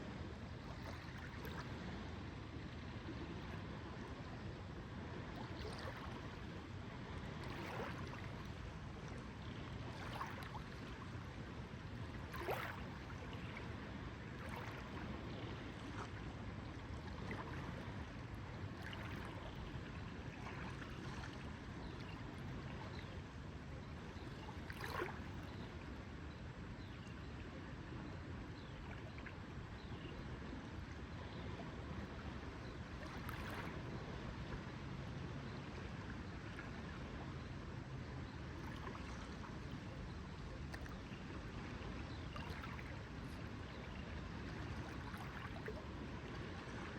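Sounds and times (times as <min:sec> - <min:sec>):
water lapping: 0:00.6 - 0:02.0, 0:05.2 - 0:23.1, 0:24.3 - 0:25.8, 0:31.2 - 0:34.5, 0:38.5 - 0:46.9.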